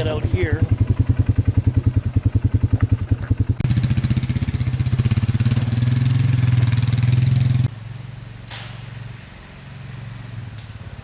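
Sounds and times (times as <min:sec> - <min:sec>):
chainsaw engine revving: 0:03.6 - 0:07.7.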